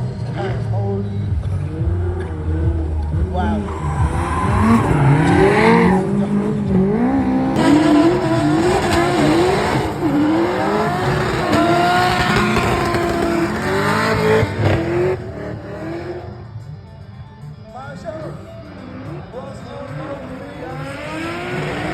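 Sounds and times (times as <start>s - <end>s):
car engine revving: 0.0s - 16.8s, 18.6s - 21.9s
tyre squeal: 3.4s - 10.0s.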